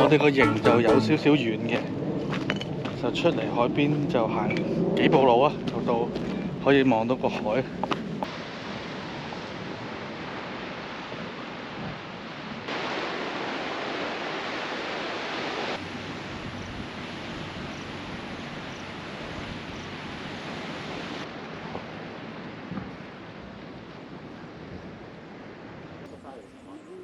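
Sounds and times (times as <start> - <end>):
wind: 0.0 - 27.0
sea waves washing onto shore: 8.2 - 23.5.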